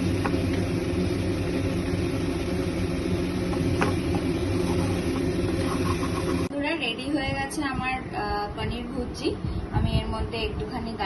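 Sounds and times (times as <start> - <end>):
low motor hum: 0.0 - 6.6.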